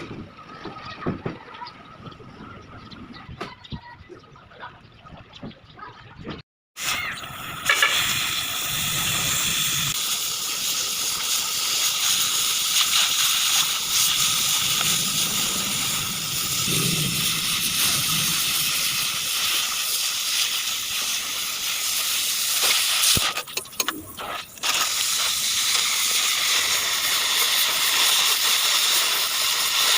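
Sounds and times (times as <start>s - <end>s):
cutting torch hissing: 6.8s - 29.9s.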